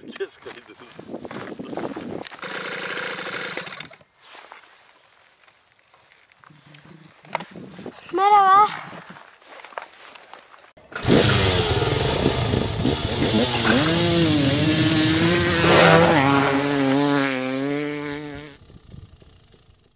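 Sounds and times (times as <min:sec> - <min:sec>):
small motorbike engine revving: 0:02.3 - 0:04.0, 0:10.9 - 0:19.9.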